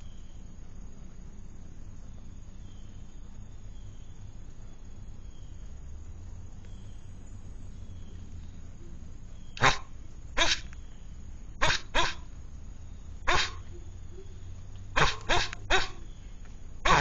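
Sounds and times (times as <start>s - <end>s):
dog barking: 9.6s - 10.7s, 11.6s - 12.3s, 13.2s - 13.8s, 14.9s - 16.0s.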